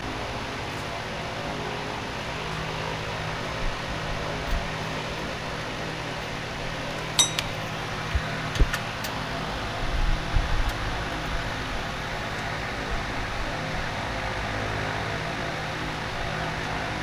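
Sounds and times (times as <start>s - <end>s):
metallic clinks of hand tools: 7.2s - 7.6s.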